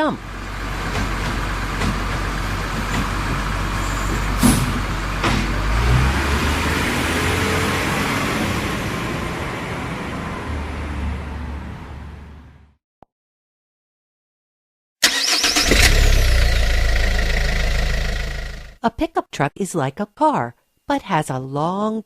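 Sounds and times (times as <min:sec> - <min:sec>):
garbage truck engine running: 0:00.0 - 0:10.7, 0:15.0 - 0:18.8
short sharp air hisses: 0:04.4 - 0:04.8.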